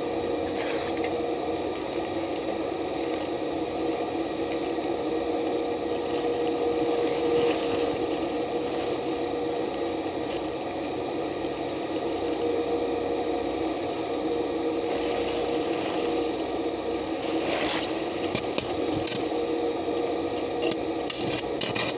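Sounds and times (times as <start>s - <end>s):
steady hum: 0.0s - 21.9s
welding arc crackling: 20.2s - 21.9s.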